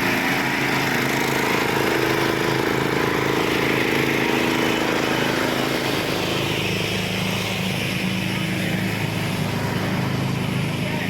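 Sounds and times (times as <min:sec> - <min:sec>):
small mower engine running: 0:00.0 - 0:11.0.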